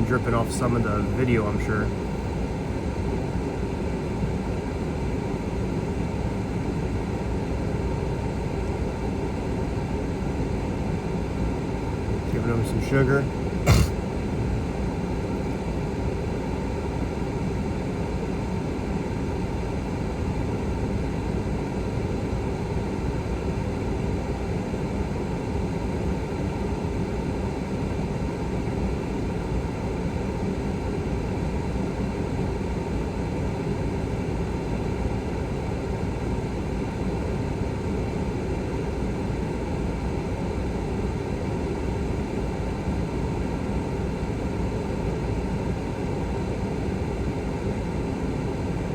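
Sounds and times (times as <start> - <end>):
air conditioning blower rushing: 13.7 - 14.0.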